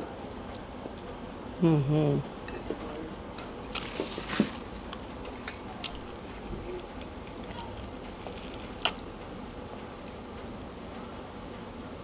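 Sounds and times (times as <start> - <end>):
close chewing and eating: 2.6 - 9.1.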